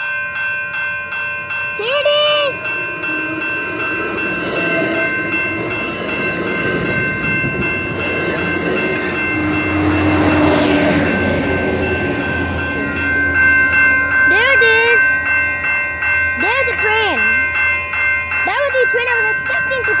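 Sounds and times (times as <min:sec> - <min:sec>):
crossing warning bells ringing: 0:00.0 - 0:20.0
train rumbling and clattering on rails: 0:00.0 - 0:20.0.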